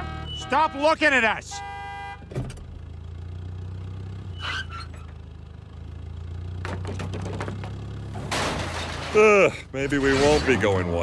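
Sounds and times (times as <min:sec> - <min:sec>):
car engine idling: 0:01.0 - 0:09.8
clicks and rattles: 0:06.6 - 0:09.2.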